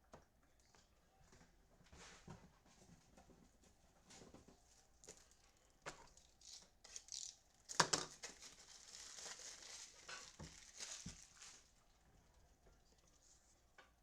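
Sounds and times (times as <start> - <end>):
card pack wrappers crinkling: 5.1 - 11.8.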